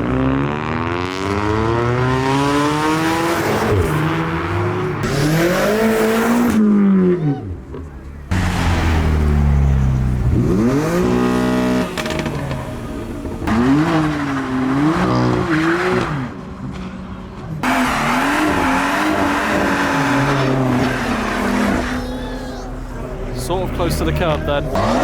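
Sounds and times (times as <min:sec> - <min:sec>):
car engines revving: 0:00.0 - 0:25.0
tyres screeching: 0:17.6 - 0:25.0.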